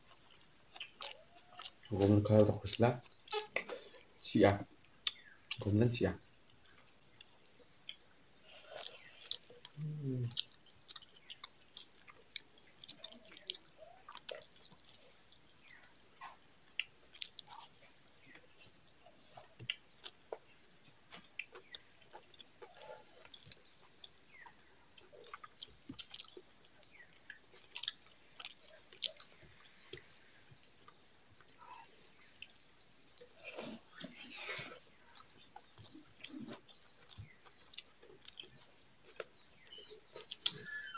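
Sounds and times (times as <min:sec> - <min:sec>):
chewing and mouth clicks: 0:00.0 - 0:04.1, 0:04.7 - 0:40.9
short vocal sound: 0:09.8 - 0:10.4.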